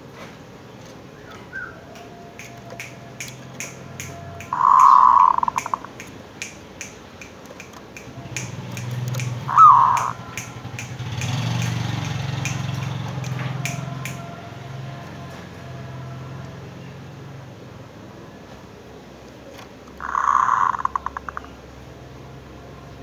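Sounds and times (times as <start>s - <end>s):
dove cooing: 1.3s - 15.4s, 20.0s - 21.6s
sharp ticking clicks: 2.0s - 14.6s, 19.8s - 21.6s.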